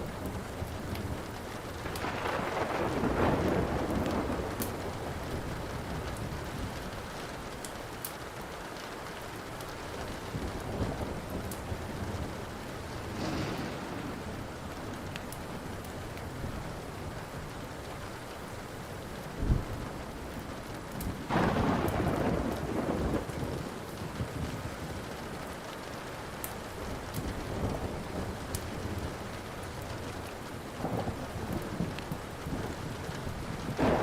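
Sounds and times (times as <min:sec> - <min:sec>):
steady rain: 0:00.0 - 0:34.0
wood fire crackling: 0:00.0 - 0:34.0
thunder rumbling: 0:00.2 - 0:07.6, 0:09.8 - 0:17.6, 0:19.3 - 0:25.2, 0:26.6 - 0:34.0
loud low thump: 0:13.0 - 0:14.8.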